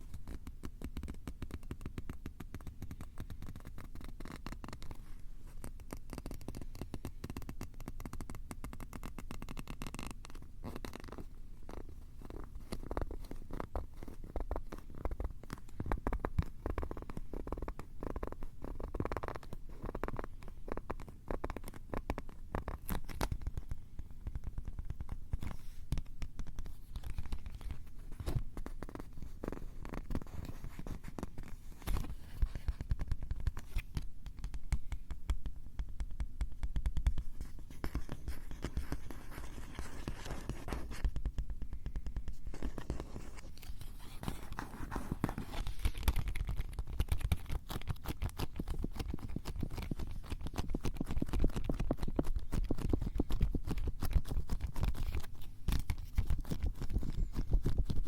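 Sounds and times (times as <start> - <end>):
microphone scratching and handling: 22.7 - 34.6, 37.1 - 58.0.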